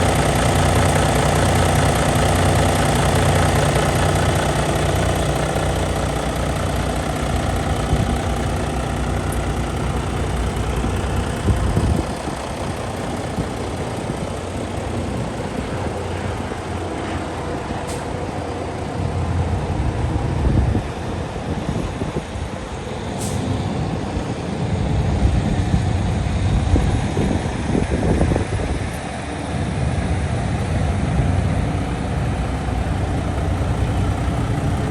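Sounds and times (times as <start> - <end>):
gusty low rumbles: 0.0 - 34.9
truck diesel engine idling: 0.0 - 34.9.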